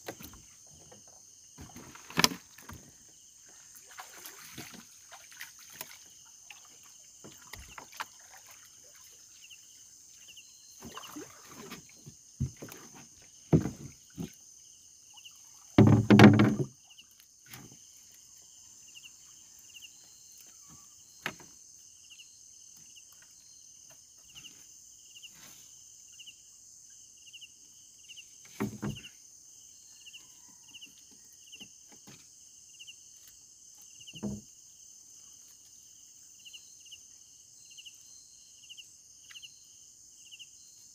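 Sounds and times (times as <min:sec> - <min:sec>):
high insect hum: 0:00.0 - 0:40.9
water splashing: 0:03.4 - 0:09.6, 0:10.8 - 0:14.4
knocks on small boat: 0:13.5 - 0:14.4, 0:15.8 - 0:16.8, 0:28.5 - 0:29.1, 0:34.1 - 0:34.5.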